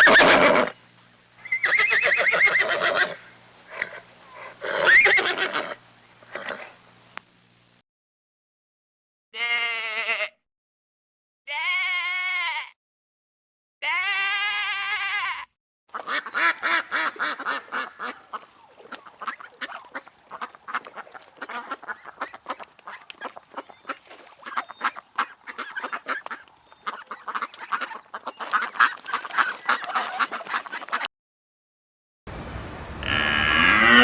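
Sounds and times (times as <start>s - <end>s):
sheep bleating: 9.4s - 10.4s, 11.5s - 12.7s, 13.8s - 15.5s, 33.0s - 34.0s
waterfowl honking and quacking: 16.0s - 31.1s, 33.0s - 34.0s.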